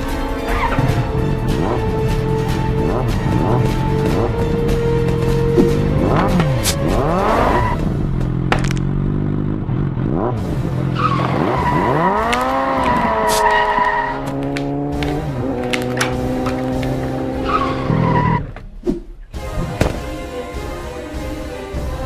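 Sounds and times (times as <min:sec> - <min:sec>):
motorcycle engine revving: 0:00.5 - 0:18.4
tyre screeches: 0:11.0 - 0:14.4.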